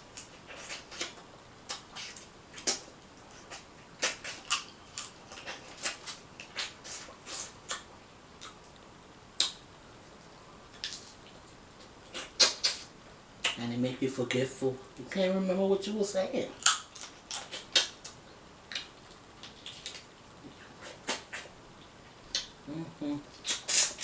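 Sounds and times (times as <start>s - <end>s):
crab shell cracking: 16.6s - 20.0s.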